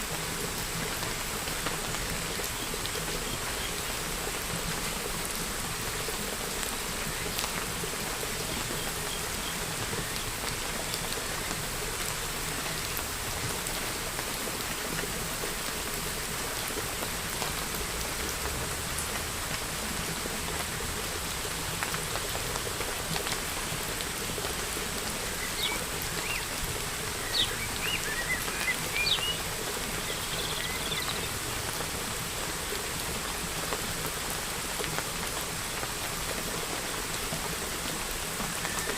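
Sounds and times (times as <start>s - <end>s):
steady rain falling: 0.0s - 38.9s
bird chirping: 27.2s - 29.4s, 30.0s - 31.2s.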